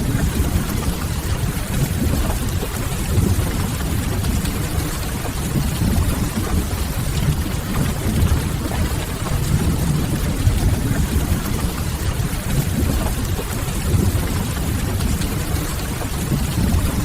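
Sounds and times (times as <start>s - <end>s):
rain on window glass: 0.0s - 17.0s
firewood crackling: 7.2s - 11.2s.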